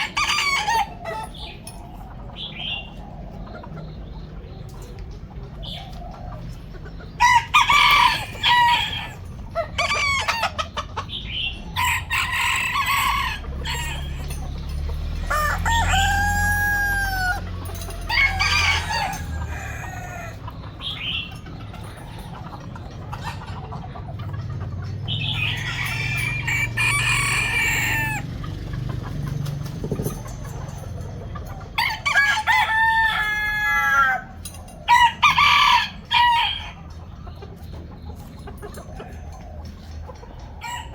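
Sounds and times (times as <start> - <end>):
chickens clucking: 0.0 - 40.9
rooster crowing: 7.2 - 10.6, 11.8 - 20.4, 25.2 - 28.4, 31.8 - 36.8.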